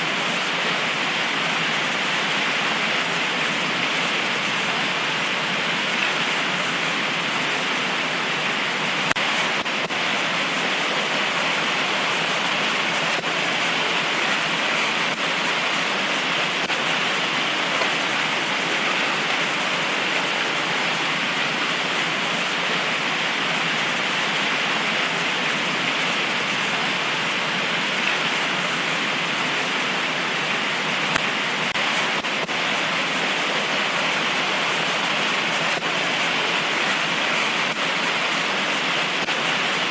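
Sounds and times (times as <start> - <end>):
heavy rain pouring: 0.0 - 39.9
rain drop ticks: 9.0 - 9.8.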